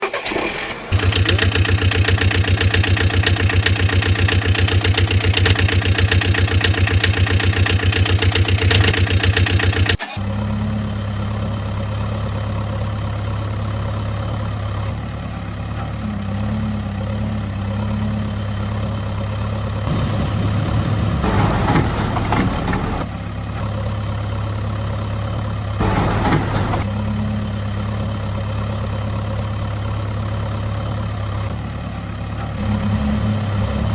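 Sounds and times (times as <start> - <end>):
engine running with pulsing beat: 0.9 - 15.2.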